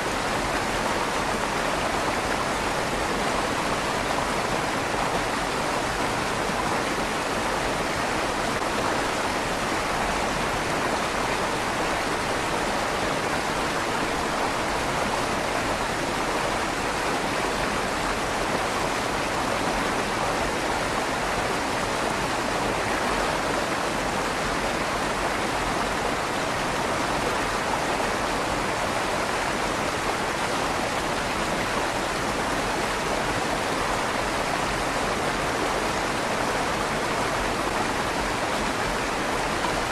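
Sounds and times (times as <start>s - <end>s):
river water flowing through tunnel: 0.0s - 39.9s.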